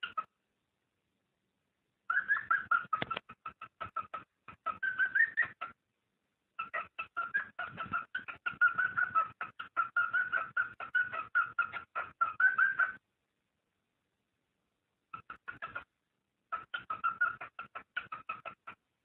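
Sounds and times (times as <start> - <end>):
cockatiel chirping: 0.0 - 0.3, 2.1 - 5.8, 6.6 - 13.0, 15.1 - 15.9, 16.5 - 18.8.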